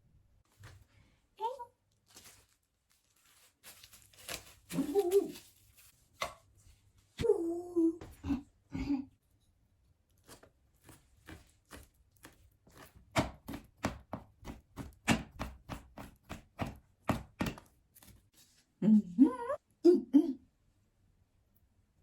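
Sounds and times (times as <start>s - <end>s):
knife chopping on cutting board: 10.3s - 17.7s.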